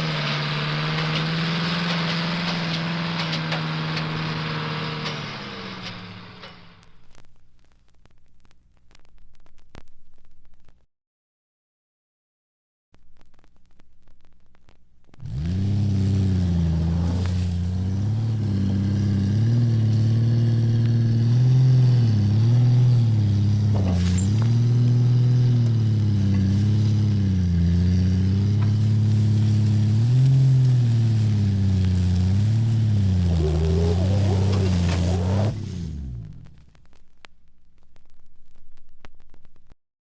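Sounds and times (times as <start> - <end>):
motor engine running: 15.2 - 36.8.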